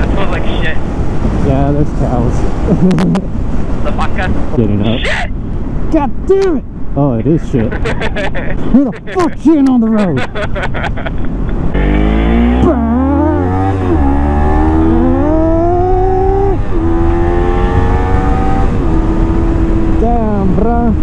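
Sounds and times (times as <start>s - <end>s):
low wind rumble: 0.0s - 21.0s
motorcycle engine accelerating: 11.7s - 20.7s.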